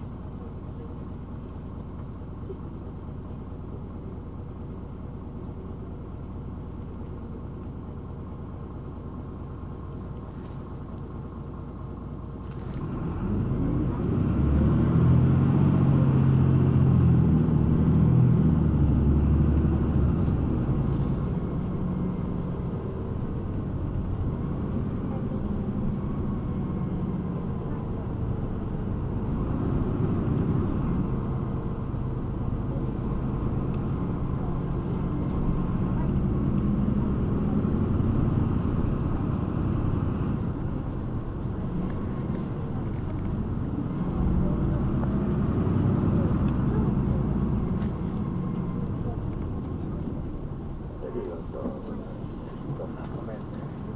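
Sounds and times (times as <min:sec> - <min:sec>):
bus engine running: 0:00.0 - 0:53.9.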